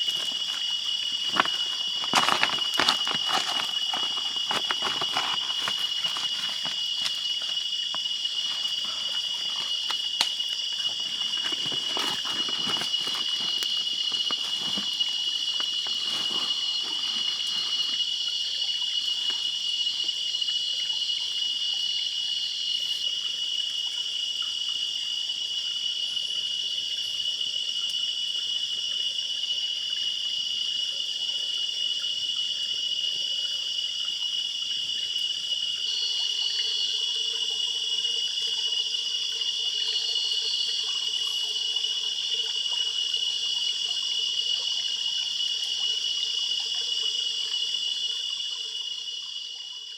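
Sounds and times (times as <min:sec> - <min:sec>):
rustling: 0:00.0 - 0:18.1
forest insects chorus: 0:00.0 - 0:49.9.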